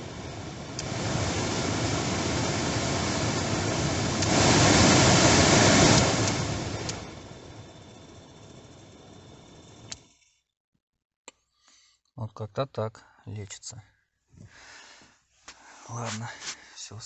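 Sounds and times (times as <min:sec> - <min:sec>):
heater blower fan blowing air: 0:00.0 - 0:10.1.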